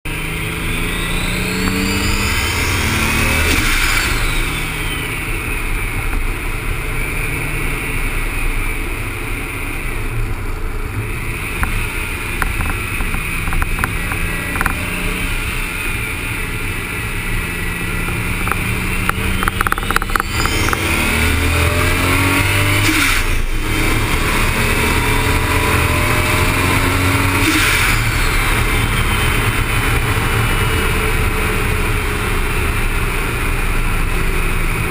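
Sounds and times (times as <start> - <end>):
tyres on tarmac: 0.0 - 34.9
car engine revving through gears: 0.1 - 34.9.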